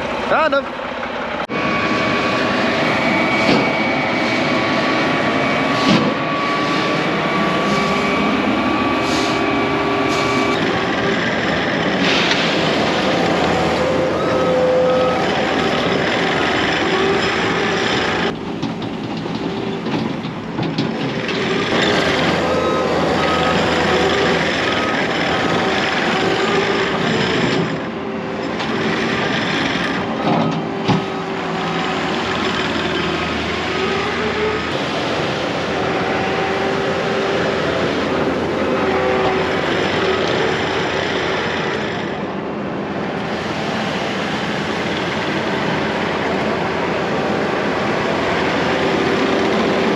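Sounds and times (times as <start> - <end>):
diesel skid steer running: 0.0 - 49.9
reversing alarm beeping: 1.5 - 18.4, 21.3 - 27.8.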